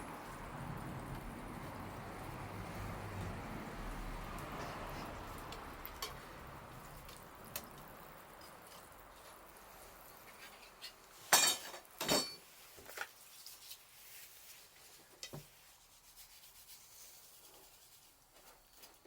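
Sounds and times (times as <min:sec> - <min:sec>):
dishes and utensils clattering: 0:11.2 - 0:12.5.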